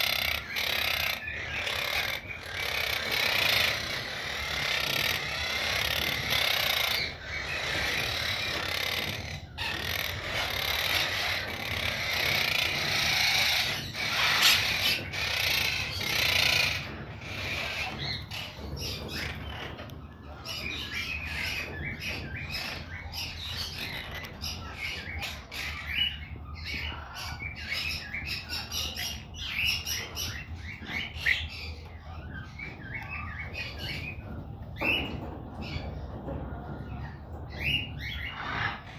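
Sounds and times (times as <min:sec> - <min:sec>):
parakeet chirping: 0:00.0 - 0:19.9.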